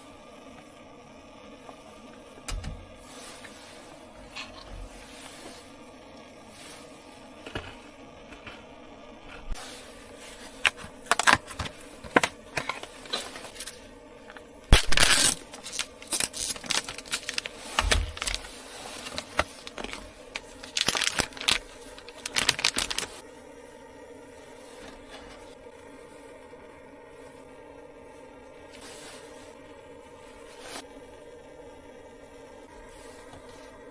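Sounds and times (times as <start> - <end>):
faint steady hum: 0.0 - 33.9
handling noises: 2.4 - 23.2.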